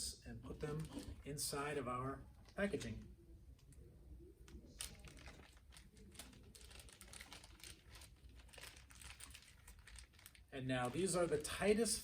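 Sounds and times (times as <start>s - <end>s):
plastic bags crinkling: 0.6s - 1.3s, 4.6s - 12.0s.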